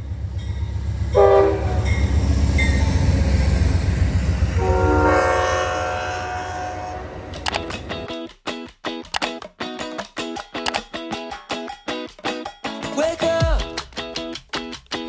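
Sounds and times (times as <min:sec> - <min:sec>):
train rumble: 0:00.0 - 0:08.1
train horn blasts: 0:01.1 - 0:02.1, 0:04.5 - 0:07.3.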